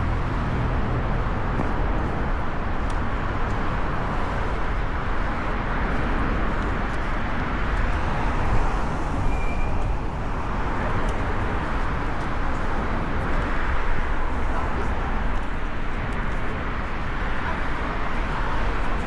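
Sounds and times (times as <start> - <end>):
city street traffic: 0.0 - 19.0
high squeal: 9.0 - 10.5.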